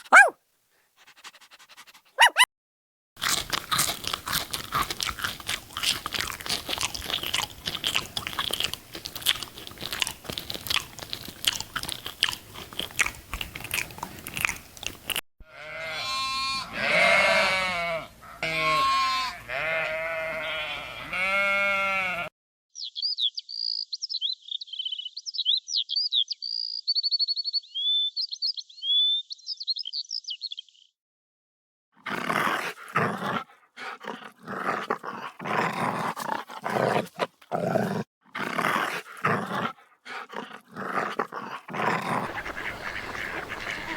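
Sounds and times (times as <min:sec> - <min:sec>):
animal crunching while chewing: 0:03.2 - 0:15.2, 0:32.1 - 0:43.9
wavering bleats: 0:15.5 - 0:22.3.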